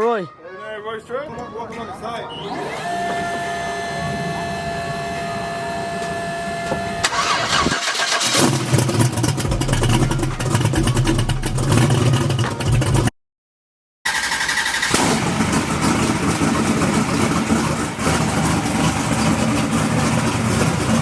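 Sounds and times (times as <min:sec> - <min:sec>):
starter whine: 0:02.4 - 0:13.1, 0:14.1 - 0:21.0
engine running unevenly: 0:02.7 - 0:13.1, 0:14.9 - 0:21.0.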